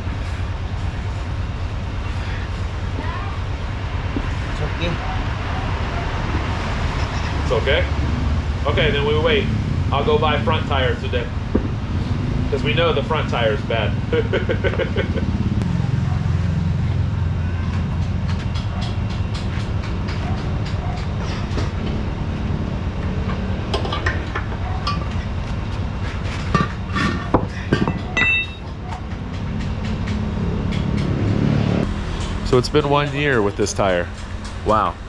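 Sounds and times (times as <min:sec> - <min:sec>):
metal tools clinking: 0:23.7 - 0:25.2, 0:26.5 - 0:28.7.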